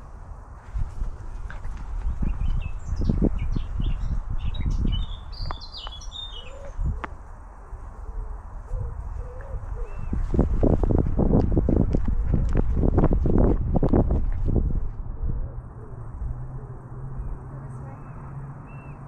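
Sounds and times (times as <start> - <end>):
low rumble: 0.0 - 18.8
songbird chirping: 1.2 - 10.3, 15.6 - 19.0.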